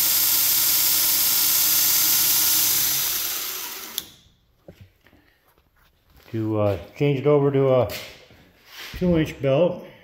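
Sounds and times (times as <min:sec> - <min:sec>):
belt grinder whirring: 0:00.0 - 0:04.3.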